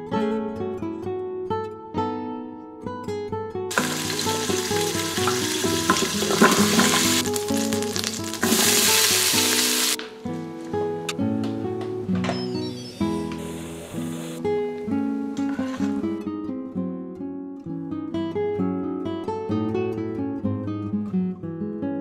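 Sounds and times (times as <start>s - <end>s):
acoustic guitar music: 0.0s - 22.0s
food sizzling in hot oil: 3.7s - 10.0s.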